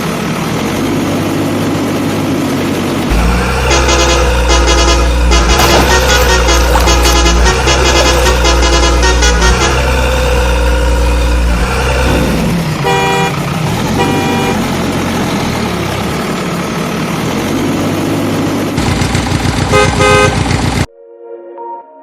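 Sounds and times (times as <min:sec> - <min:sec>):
vehicle engine running: 0:00.0 - 0:20.9
horn honks: 0:03.1 - 0:14.8, 0:19.6 - 0:20.6.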